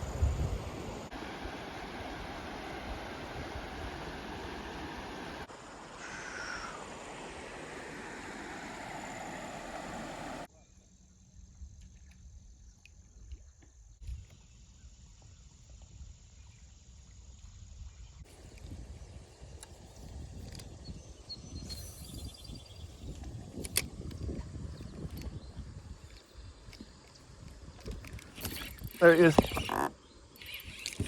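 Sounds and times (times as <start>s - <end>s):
river rushing: 0.0s - 10.5s.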